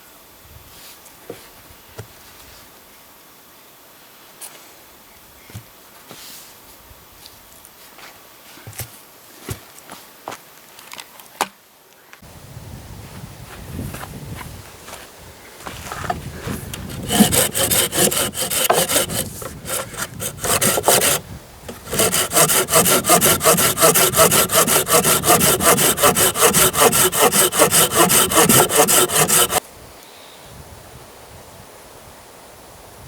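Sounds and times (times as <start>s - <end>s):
hand saw cutting wood: 15.9s - 29.6s.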